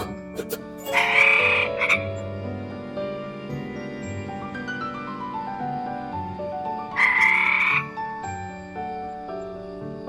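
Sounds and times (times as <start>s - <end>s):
frog croaking: 0.0s - 2.2s, 6.9s - 8.2s.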